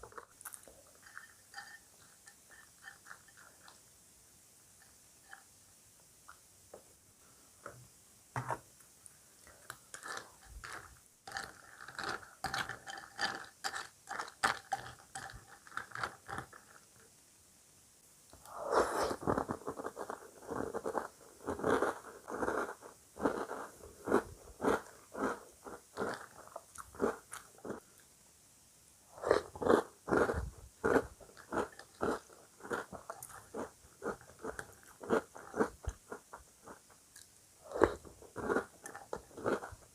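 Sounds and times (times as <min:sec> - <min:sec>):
chewing crunchy cereal: 0:00.0 - 0:03.8, 0:09.5 - 0:16.9, 0:18.4 - 0:28.1, 0:29.2 - 0:39.9.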